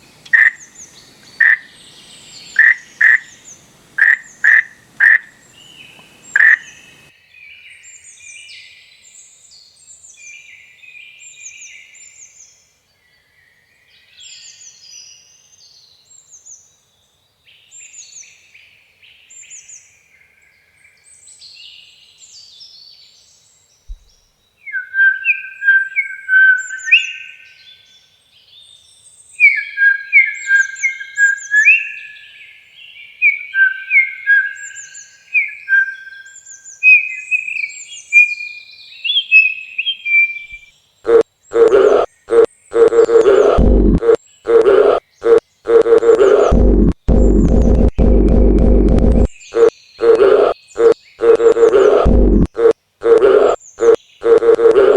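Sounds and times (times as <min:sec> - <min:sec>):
small songbirds chirping: 0:00.0 - 0:07.1
bird whistling repeated notes: 0:04.0 - 0:07.0.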